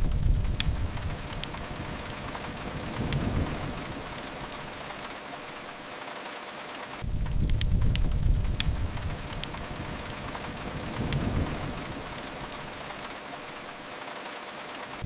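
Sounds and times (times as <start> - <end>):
low rumble: 0.0 - 5.0, 7.0 - 13.0
rain hiss: 0.0 - 15.0
wood fire crackling: 0.0 - 15.0.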